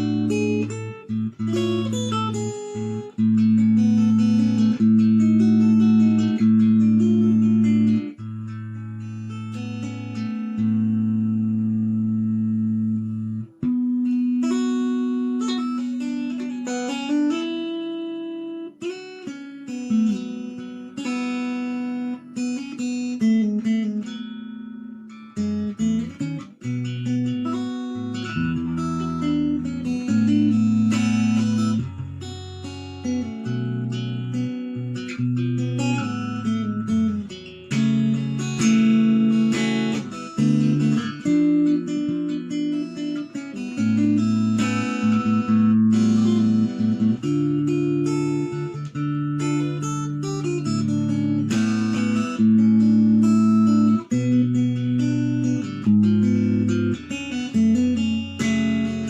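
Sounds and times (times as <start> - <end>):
guitar music: 0.0 - 59.0.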